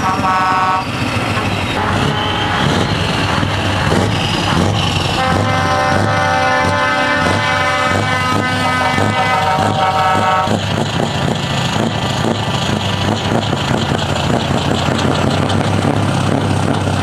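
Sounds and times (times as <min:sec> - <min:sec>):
truck air horn: 0:00.0 - 0:03.0, 0:04.5 - 0:10.6
truck engine through straight exhaust: 0:00.0 - 0:17.0.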